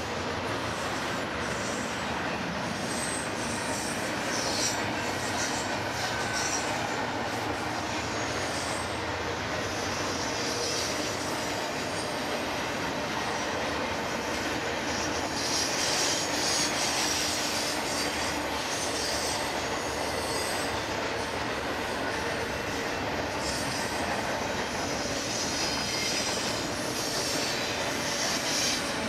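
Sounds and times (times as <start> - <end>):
freight train rumbling past: 0.0 - 29.0
high wheel squeals: 0.5 - 29.0.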